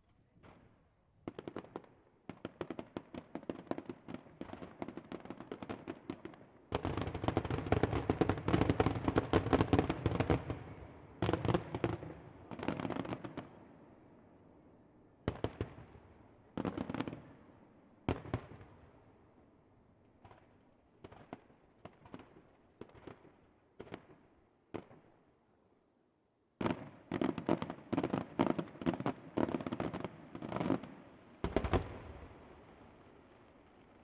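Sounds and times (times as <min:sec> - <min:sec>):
fireworks bangs and crackle: 0:00.4 - 0:13.6, 0:20.2 - 0:25.1, 0:26.6 - 0:34.0.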